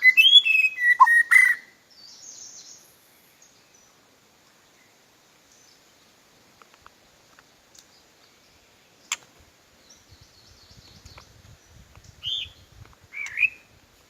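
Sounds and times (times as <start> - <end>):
bird warbling and calling: 0.0 - 1.7, 12.2 - 13.7.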